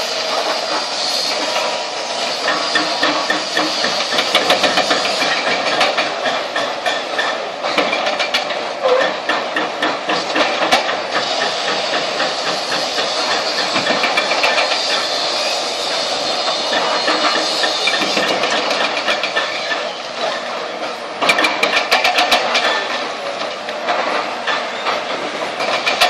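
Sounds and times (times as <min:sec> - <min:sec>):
excavator machinery noise: 0:00.0 - 0:26.0.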